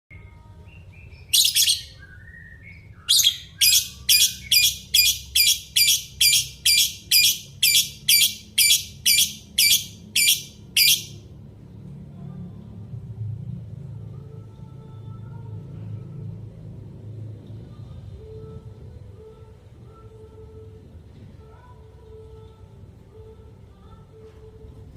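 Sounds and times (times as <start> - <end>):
parrot screeching: 3.1 - 11.2.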